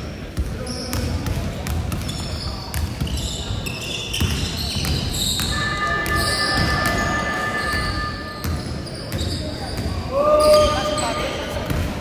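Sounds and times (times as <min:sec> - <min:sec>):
voices in a large hall: 0:00.0 - 0:12.0
steady high tone: 0:05.4 - 0:09.5.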